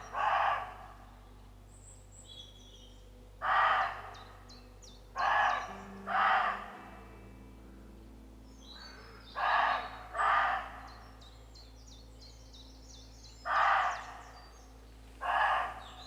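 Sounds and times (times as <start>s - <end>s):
deer barking: 0.0s - 1.1s, 3.4s - 4.5s, 5.2s - 7.3s, 8.8s - 11.2s, 13.4s - 14.4s, 15.2s - 16.0s
small birds singing: 0.0s - 16.0s.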